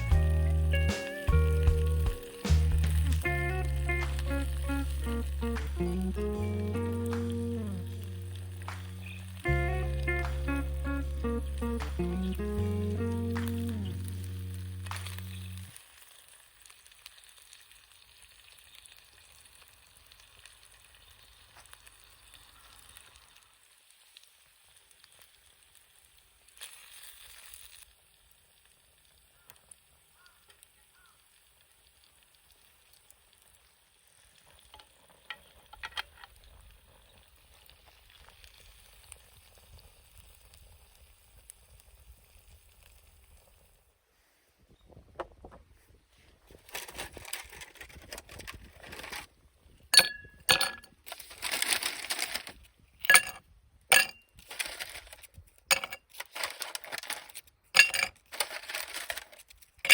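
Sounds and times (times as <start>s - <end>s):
fire crackles: 0.0s - 44.0s, 45.9s - 50.4s
food sizzling in a pan: 0.1s - 35.7s.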